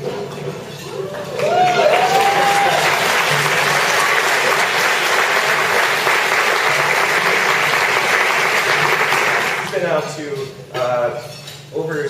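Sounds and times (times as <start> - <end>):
audience applauding: 1.2 - 9.8.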